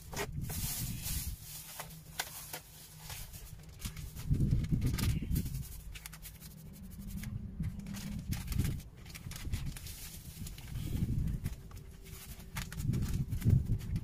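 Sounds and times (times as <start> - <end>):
wind buffeting microphone: 0.0 - 1.5, 3.4 - 6.0, 6.9 - 14.0.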